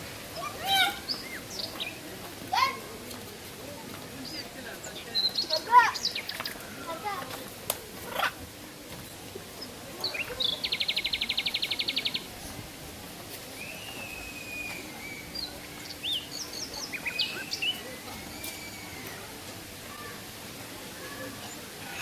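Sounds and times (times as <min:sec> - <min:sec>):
steady background hiss: 0:00.0 - 0:22.0
bird chirps and whistles: 0:13.6 - 0:16.4
bird trill: 0:13.6 - 0:19.1.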